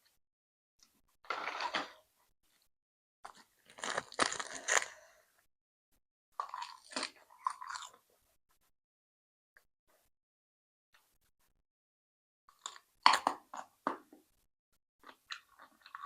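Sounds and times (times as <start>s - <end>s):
person chewing crunchy food: 3.3s - 5.2s, 6.4s - 8.1s, 12.5s - 13.8s, 15.0s - 16.0s.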